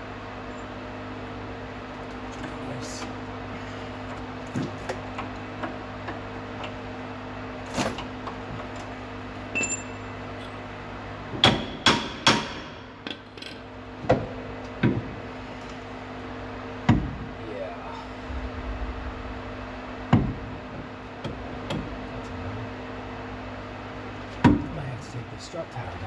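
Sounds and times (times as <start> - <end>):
steady low hum: 17.4 - 26.0.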